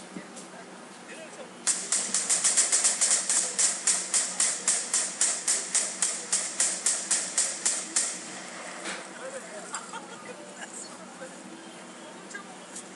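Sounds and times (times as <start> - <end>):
rifle rapid semi-automatic shots: 1.7 - 8.8.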